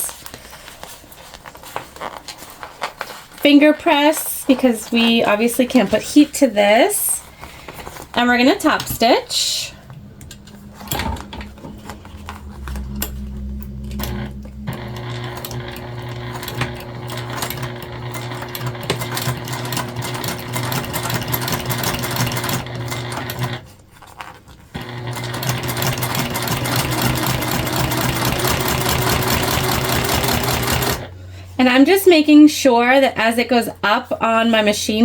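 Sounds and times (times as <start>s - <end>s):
electric sewing machine running: 10.7s - 23.6s, 24.8s - 31.2s.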